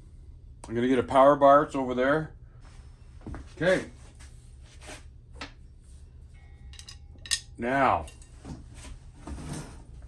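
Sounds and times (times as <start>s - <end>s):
metal tools clinking: 6.7s - 8.3s.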